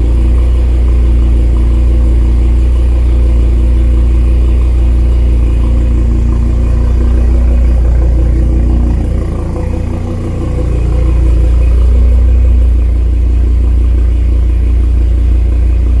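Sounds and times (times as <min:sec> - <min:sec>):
car engine idling loudly: 0:00.0 - 0:16.0.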